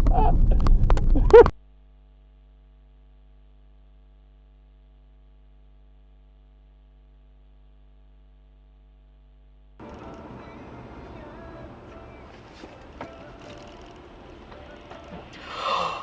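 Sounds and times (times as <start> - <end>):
vehicle rumble: 0.0 - 1.5, 9.8 - 15.6
low electrical hum: 0.0 - 15.4.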